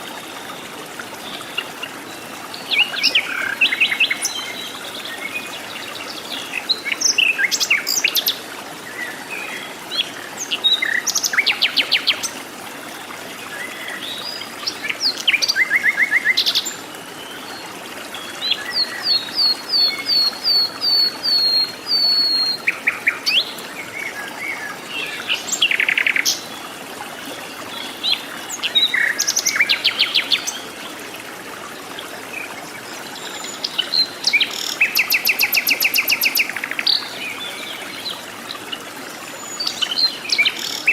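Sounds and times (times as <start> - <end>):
birds calling and singing: 1.2 - 26.7, 32.2 - 40.9.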